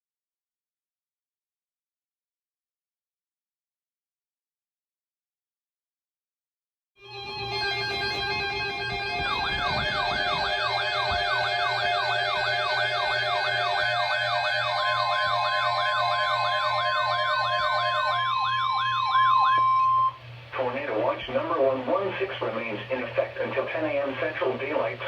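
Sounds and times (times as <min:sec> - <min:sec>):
electronic wailing siren tone: 0:07.0 - 0:20.2
steady electronic tones chord: 0:07.0 - 0:20.5
steady high alert tone: 0:07.1 - 0:20.2.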